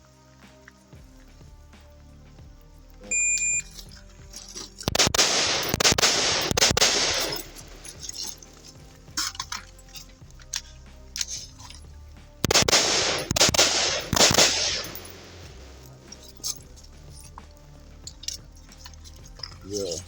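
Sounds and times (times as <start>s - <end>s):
background music with steady tones: 0.0s - 20.0s
shot timer beep: 3.1s - 3.6s
echoing rifle shots: 4.9s - 8.4s, 12.4s - 15.9s.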